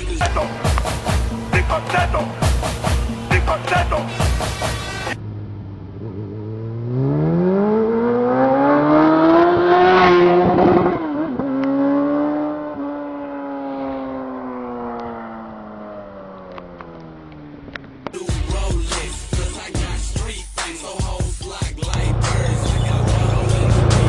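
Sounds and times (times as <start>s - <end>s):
motorcycle engine accelerating: 4.2s - 18.1s, 21.9s - 24.0s.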